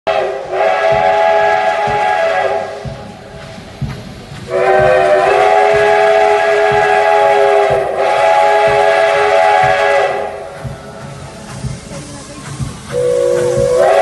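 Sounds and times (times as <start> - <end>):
steam locomotive whistle: 0.1 - 2.9, 4.5 - 10.6, 12.9 - 14.0
train thumps: 0.1 - 14.0.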